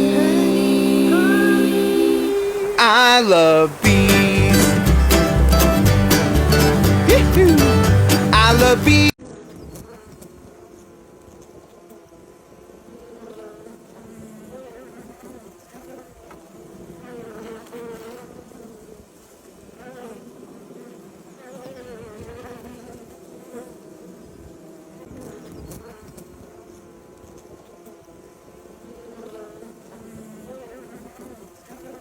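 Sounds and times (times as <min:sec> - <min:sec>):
bees buzzing: 0:00.0 - 0:09.1.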